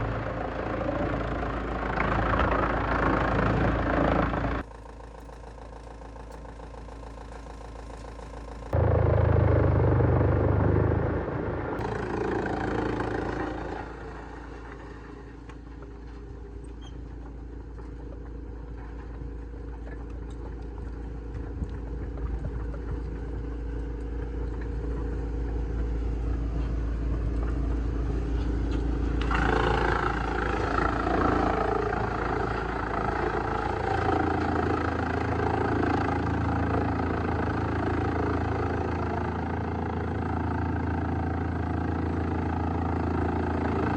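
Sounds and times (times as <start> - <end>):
rough grinding noise: 0.0 - 15.5, 28.3 - 39.2
wood shredding machine: 0.0 - 16.4, 26.6 - 43.9.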